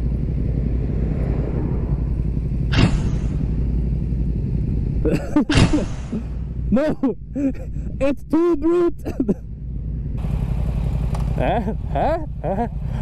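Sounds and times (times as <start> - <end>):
wind noise: 0.0 - 3.9
motorcycle engine rumbling: 0.0 - 13.0.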